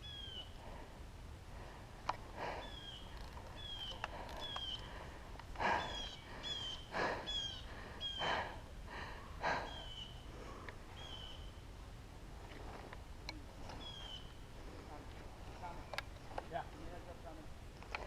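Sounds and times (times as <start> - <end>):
breathy rustling bursts: 0.6 - 10.9.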